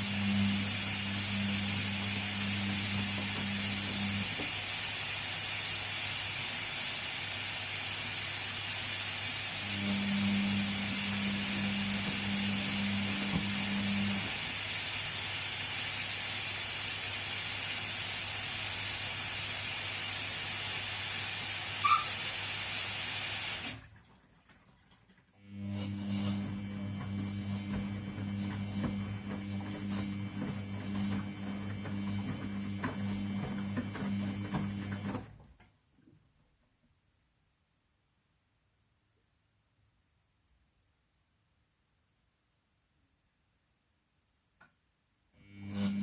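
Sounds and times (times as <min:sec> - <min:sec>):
washing machine motor hum: 0:00.0 - 0:35.6, 0:45.4 - 0:46.0
water hissing in washing machine: 0:00.0 - 0:35.6, 0:45.4 - 0:46.0.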